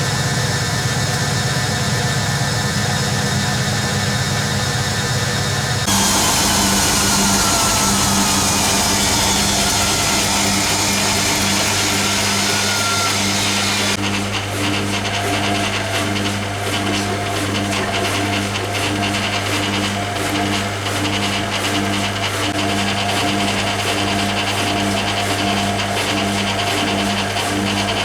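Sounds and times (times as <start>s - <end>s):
drain pump humming: 5.8s - 14.0s
water rushing out: 5.9s - 14.0s.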